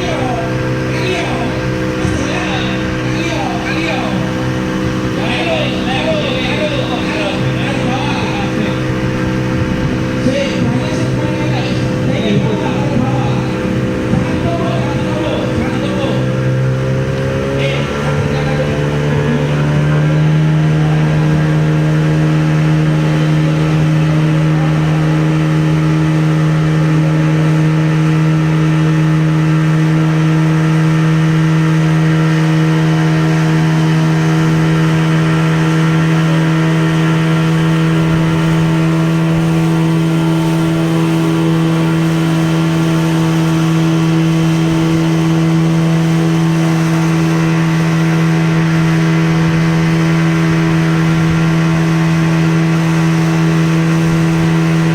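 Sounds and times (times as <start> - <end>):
boat motor humming: 0.0 - 54.9.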